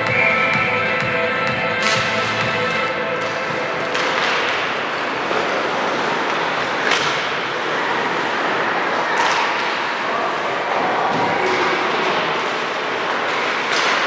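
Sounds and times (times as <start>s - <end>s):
crowd and court noise: 0.0s - 14.0s.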